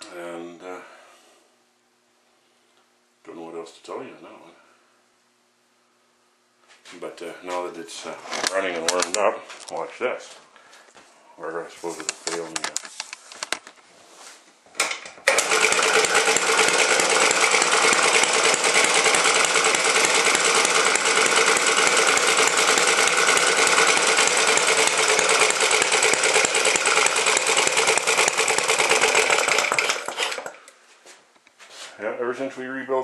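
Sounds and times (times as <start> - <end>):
small gas engine running: 15.2 - 30.7.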